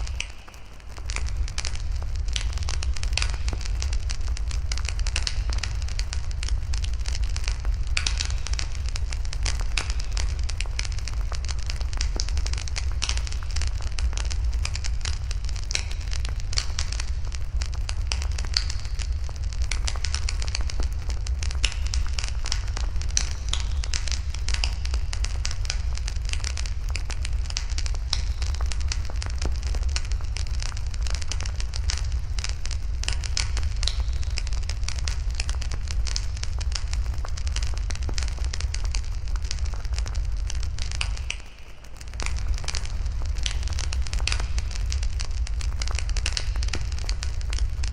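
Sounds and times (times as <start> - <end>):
campfire crackling and popping: 0.0 - 47.9
low fire rumble: 0.0 - 47.9.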